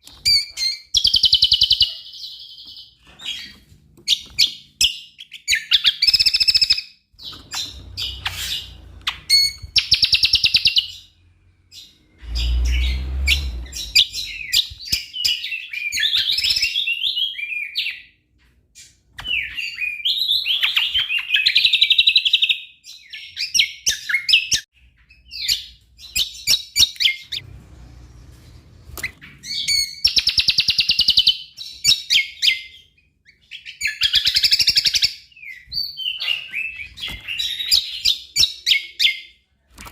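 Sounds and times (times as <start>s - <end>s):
songbird singing: 0.0s - 18.1s.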